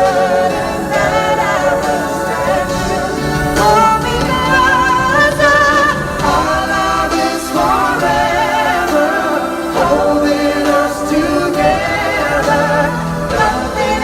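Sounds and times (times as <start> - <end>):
sustained instrumental accompaniment: 0.0 - 14.0
voices singing: 0.0 - 14.0.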